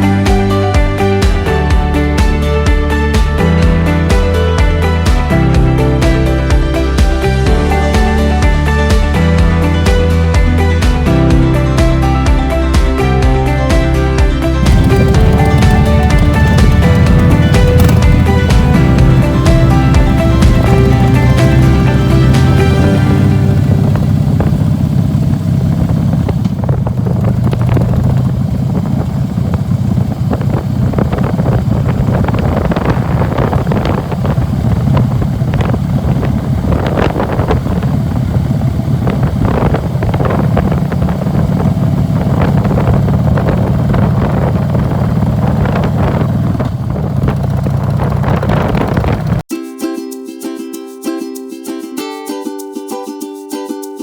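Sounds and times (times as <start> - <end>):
motorcycle engine rumbling: 14.3 - 49.5
wind buffeting microphone: 14.6 - 49.4.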